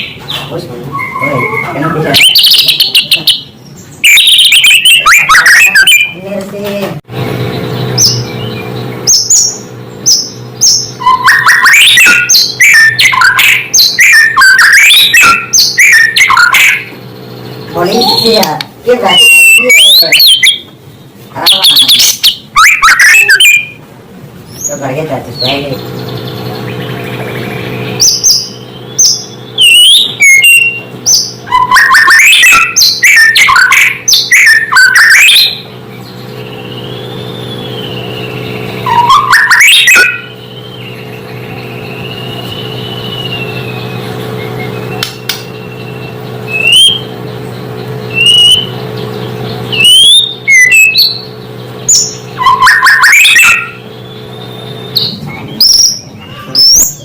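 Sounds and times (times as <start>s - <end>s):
songbird whistling song: 0.0s - 6.2s, 7.4s - 20.8s, 21.4s - 23.8s, 25.4s - 57.0s
steady low hum: 0.0s - 57.0s.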